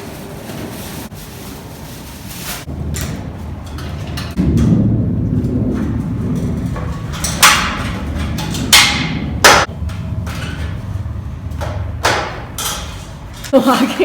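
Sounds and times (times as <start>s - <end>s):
steady low hum: 2.6s - 14.0s
loud sharp knocks: 4.3s - 10.4s, 11.6s - 12.7s.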